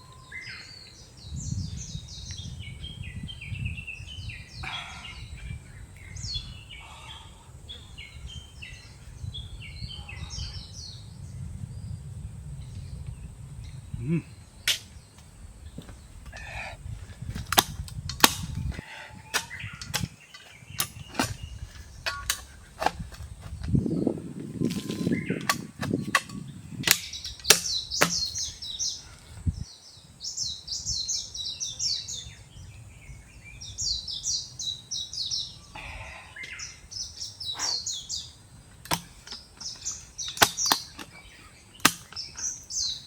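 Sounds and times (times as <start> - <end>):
bird singing: 0.0 - 43.0
sharp cracks and snaps: 14.6 - 15.3, 17.3 - 18.8, 24.6 - 28.5, 38.8 - 41.2, 41.8 - 42.6.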